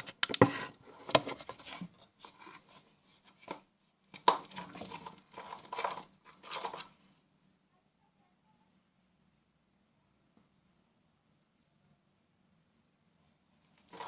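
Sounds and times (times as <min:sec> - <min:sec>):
utensil stirring and scraping slime: 0:00.0 - 0:07.2, 0:13.6 - 0:14.0.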